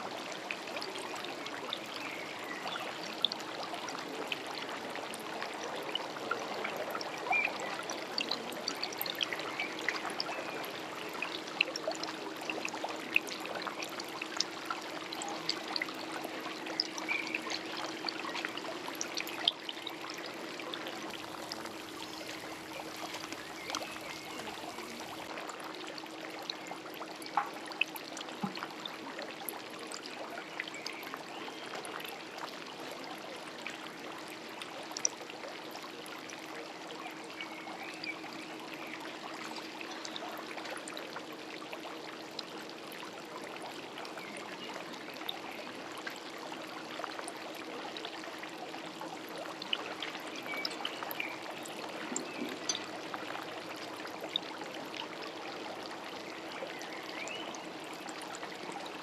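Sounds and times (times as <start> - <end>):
water trickling: 0.1 - 59.0
small ticks: 21.1 - 25.2.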